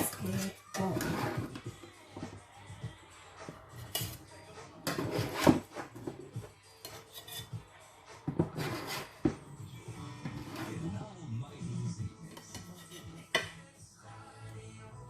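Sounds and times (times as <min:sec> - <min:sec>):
cutlery clinking against plates: 0:03.8 - 0:04.3, 0:12.3 - 0:13.6.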